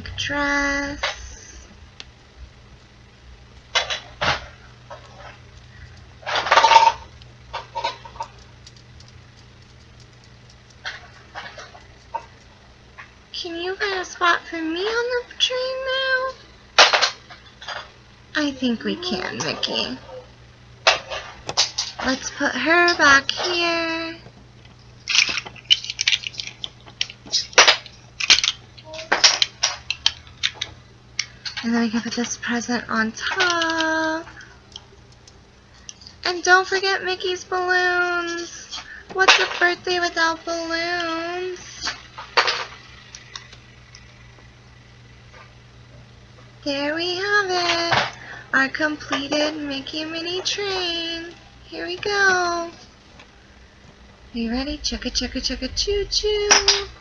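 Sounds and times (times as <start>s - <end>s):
plastic pieces rattling: 25.0s - 30.7s
plastic toy bricks clicking: 25.1s - 30.7s.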